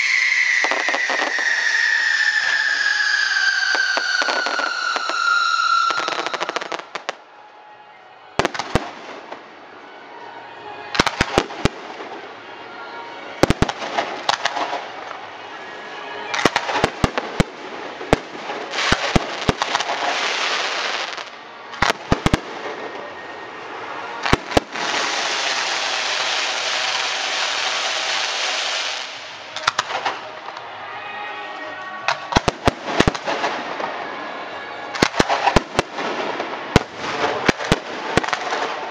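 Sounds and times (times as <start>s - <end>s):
fireworks bangs: 0.0s - 7.2s, 8.4s - 9.7s, 10.9s - 12.4s, 13.3s - 30.9s, 32.0s - 38.9s
falling firework whistle: 0.0s - 7.3s, 13.4s - 35.9s
fireworks crackling: 0.0s - 7.3s, 8.4s - 9.9s, 10.9s - 12.7s, 13.3s - 38.9s.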